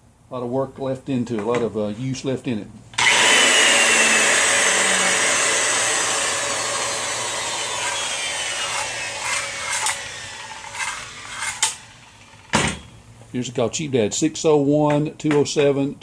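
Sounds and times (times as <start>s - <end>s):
circular saw whine: 3.0s - 12.5s.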